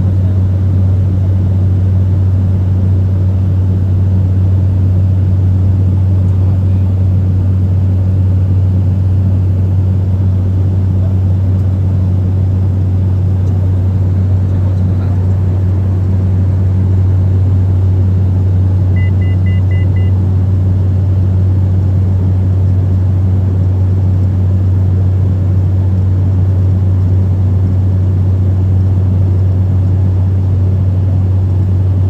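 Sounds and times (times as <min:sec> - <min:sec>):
airliner cabin drone: 0:00.0 - 0:32.0
quick short beeps: 0:19.0 - 0:20.2.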